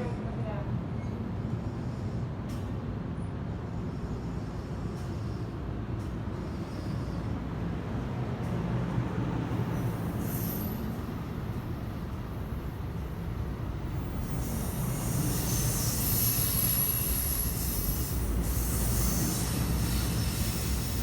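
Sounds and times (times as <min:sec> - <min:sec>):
train wheels rumbling on track: 0:00.0 - 0:21.0
high wheel squeal: 0:09.7 - 0:11.1, 0:14.2 - 0:21.0.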